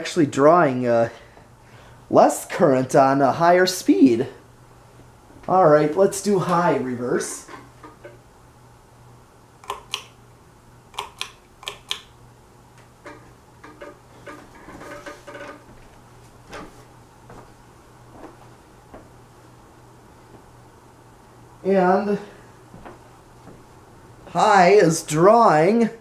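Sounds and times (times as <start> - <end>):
ceiling fan motor humming: 0.0 - 26.0
sharp clicks: 9.6 - 10.2, 10.9 - 12.2
soft knocks and rattles: 13.0 - 17.5.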